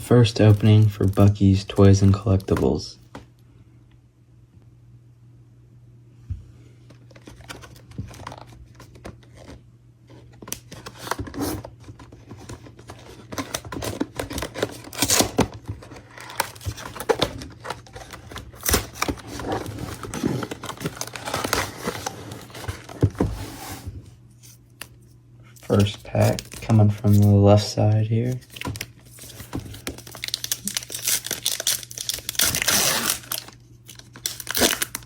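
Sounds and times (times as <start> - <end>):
plastic wrapping tearing and crinkling: 13.2 - 23.0, 28.2 - 35.0.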